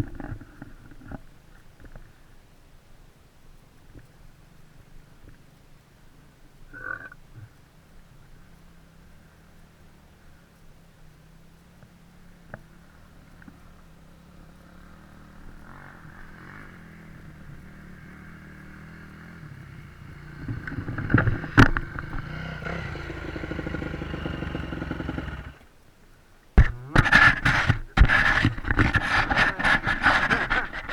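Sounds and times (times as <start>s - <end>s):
dirt bike engine running: 8.8s - 25.7s, 26.6s - 30.9s.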